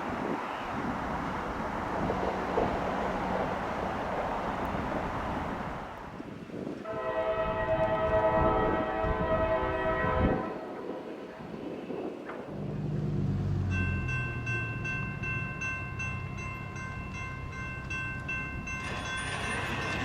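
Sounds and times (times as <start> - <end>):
passing train rumbling: 0.0 - 20.0
locomotive air horn chord: 6.8 - 10.8.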